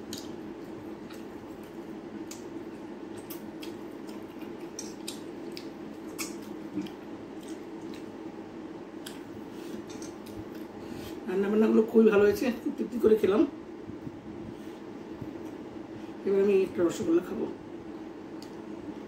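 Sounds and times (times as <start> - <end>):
wet chewing and lip-smacking: 0.0 - 8.3, 9.0 - 11.2
steady low hum: 0.0 - 19.0.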